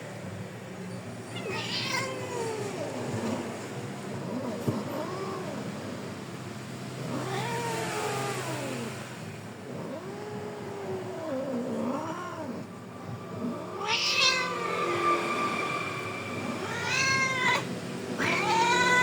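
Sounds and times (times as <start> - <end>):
cat yowling: 1.2 - 3.0, 7.0 - 8.9, 13.4 - 14.6, 16.5 - 19.0.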